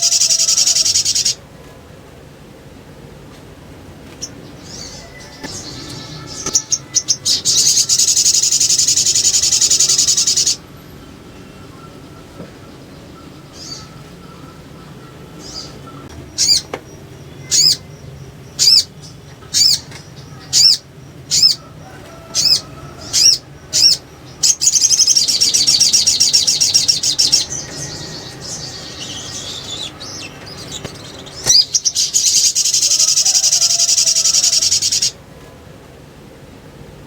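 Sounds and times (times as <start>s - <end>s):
bird rapid chattering trill: 0.0s - 1.4s, 4.6s - 10.6s, 14.8s - 16.7s, 18.6s - 21.6s, 22.4s - 35.2s
bird sharp high notes: 4.9s - 10.1s.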